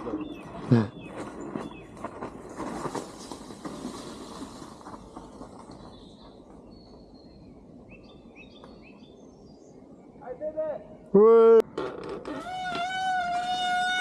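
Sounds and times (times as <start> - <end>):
bird chirps: 0.0 - 2.1
bike tyres sliding on dirt: 1.6 - 6.3, 12.5 - 14.0.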